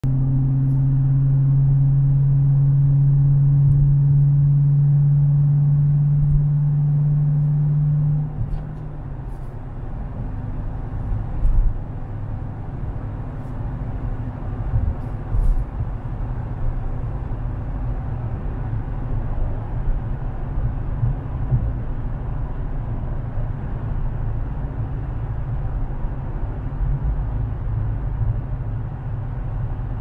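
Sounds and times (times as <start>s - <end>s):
car engine droning: 0.0s - 30.0s.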